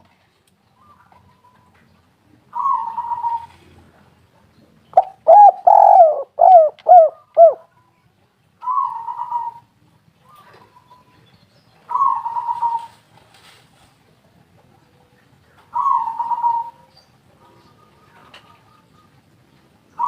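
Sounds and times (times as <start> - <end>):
dove cooing: 2.5 - 3.8, 5.0 - 7.7, 8.6 - 9.7, 11.9 - 13.0, 15.7 - 16.9.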